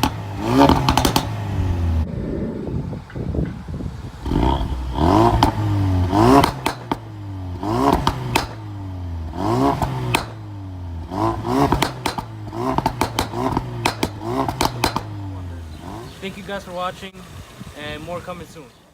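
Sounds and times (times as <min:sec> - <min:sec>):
car engine revving: 0:00.0 - 0:02.1, 0:03.9 - 0:17.2
exhaust pops and crackles: 0:00.0 - 0:02.1, 0:02.9 - 0:17.2.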